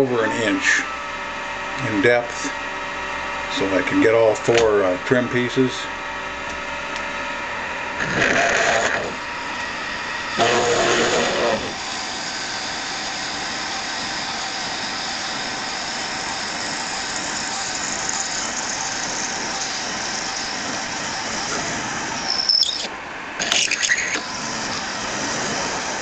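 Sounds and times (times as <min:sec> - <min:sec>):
lathe drilling into aluminum: 0:07.9 - 0:26.0
high machining squeal: 0:10.3 - 0:26.0.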